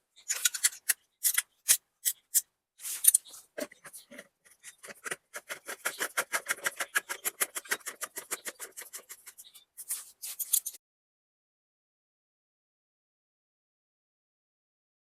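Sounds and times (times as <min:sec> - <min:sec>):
metallic scrapes: 0:02.8 - 0:10.8.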